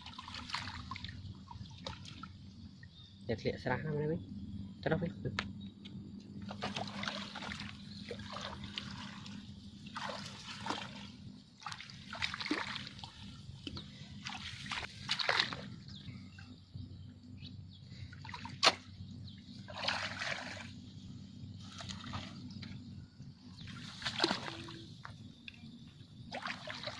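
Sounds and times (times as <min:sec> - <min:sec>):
water splashing and sloshing: 0:00.0 - 0:03.1, 0:06.3 - 0:26.9.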